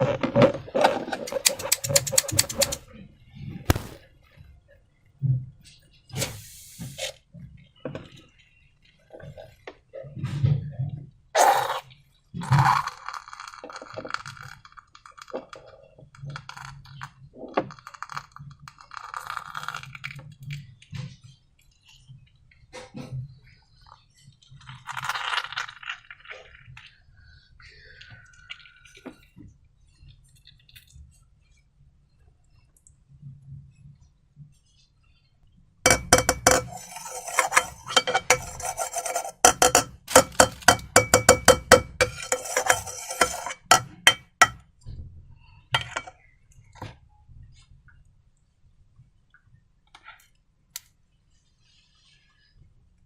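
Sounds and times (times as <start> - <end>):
utensil clinking against bowl: 1.2 - 2.8, 35.9 - 44.6, 45.8 - 46.1.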